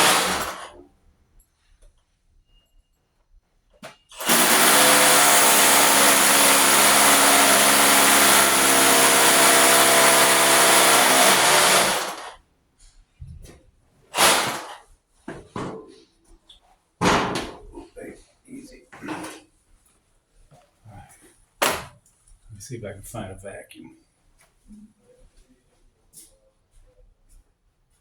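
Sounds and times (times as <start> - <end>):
hammer drill boring into concrete: 0.0 - 0.8, 4.1 - 12.4, 14.2 - 14.8.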